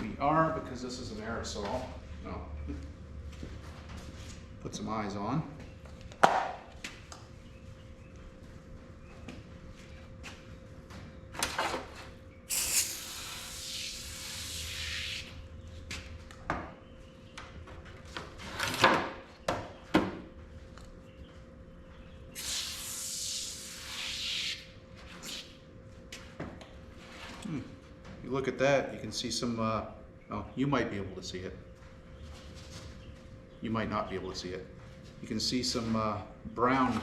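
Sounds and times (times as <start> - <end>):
aerosol can spraying: 12.5 - 15.2, 22.4 - 24.6.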